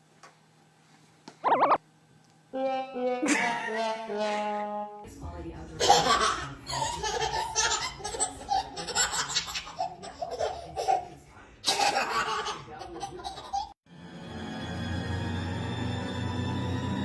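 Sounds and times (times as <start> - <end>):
baby laughing: 5.8 - 13.8.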